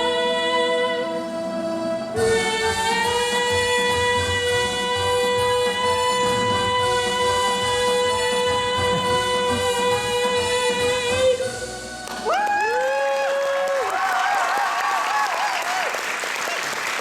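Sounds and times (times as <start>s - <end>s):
person singing long note: 0.0s - 11.8s
musical accompaniment: 0.0s - 13.2s
audience whooping: 11.4s - 17.0s.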